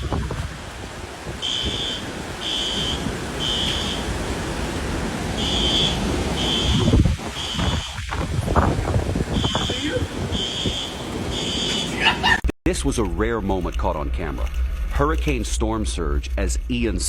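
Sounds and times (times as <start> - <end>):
low wind rumble: 0.0 - 17.0
smoke alarm beeping: 1.5 - 4.1.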